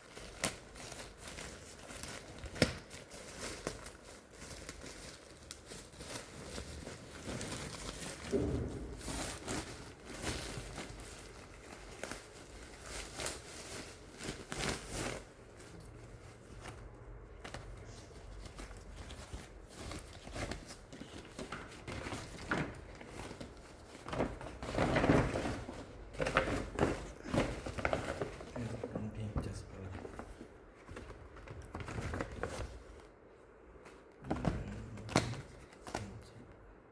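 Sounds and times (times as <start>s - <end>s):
plastic packaging crinkling: 0.0s - 33.1s.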